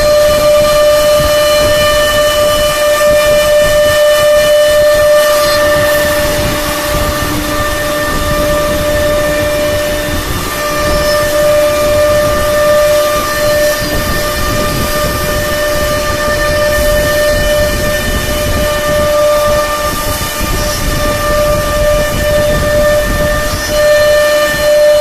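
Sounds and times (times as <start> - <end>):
router spindle whine: 0.0 - 25.0
rushing hissing noise: 0.0 - 25.0.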